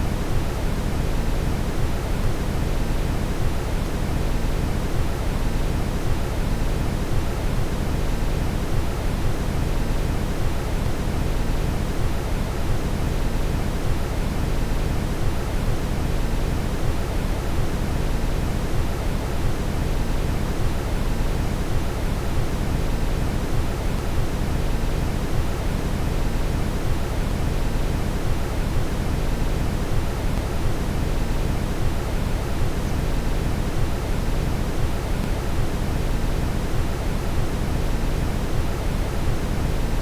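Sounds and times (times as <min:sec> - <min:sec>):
brown noise hiss: 0:00.0 - 0:40.0.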